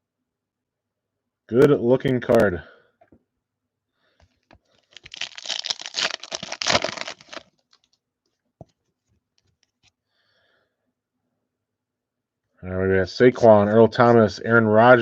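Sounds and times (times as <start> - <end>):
foil pack tearing: 4.8 - 7.8.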